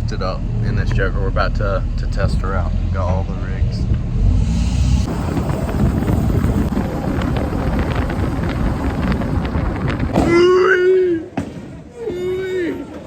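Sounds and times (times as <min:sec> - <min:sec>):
wind buffeting microphone: 0:00.0 - 0:12.5
road rumble: 0:00.0 - 0:13.0
man shouting: 0:10.2 - 0:13.0.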